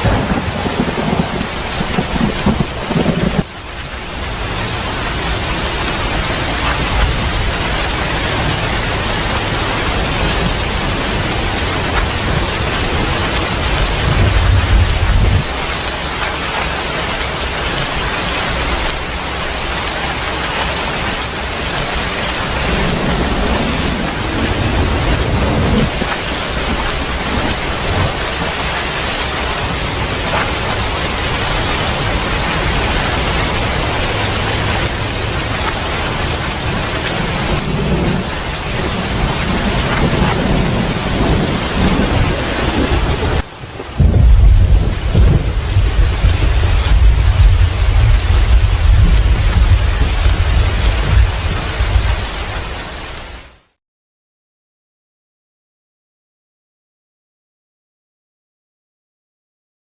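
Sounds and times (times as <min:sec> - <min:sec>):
thunder rumbles: 0:00.0 - 0:53.1
rain hissing: 0:00.0 - 0:53.8.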